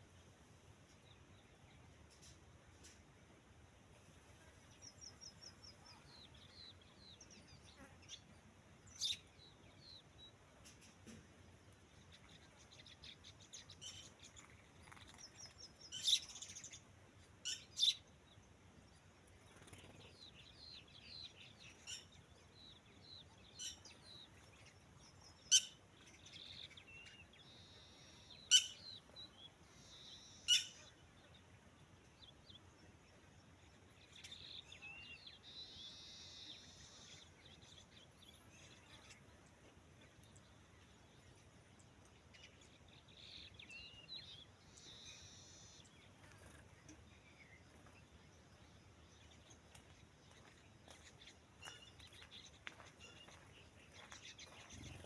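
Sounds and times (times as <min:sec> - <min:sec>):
birds chirping: 0:04.7 - 0:55.0
sharp loud bird calls: 0:27.8 - 0:29.1, 0:29.9 - 0:30.9.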